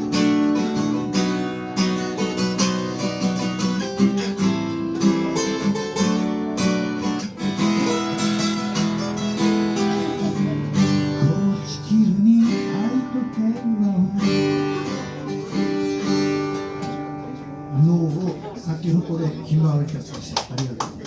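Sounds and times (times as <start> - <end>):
acoustic guitar strumming: 0.0 - 19.6
person singing: 7.7 - 19.1.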